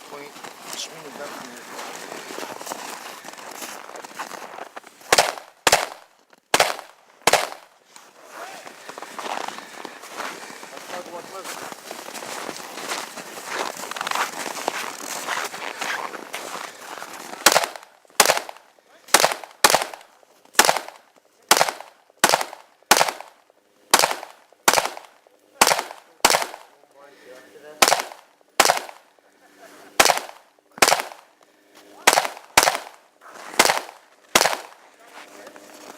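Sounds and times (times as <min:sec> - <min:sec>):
rifle shots with echo: 0:05.1 - 0:07.7, 0:17.4 - 0:26.8, 0:27.8 - 0:29.2, 0:30.0 - 0:31.4, 0:32.0 - 0:34.8.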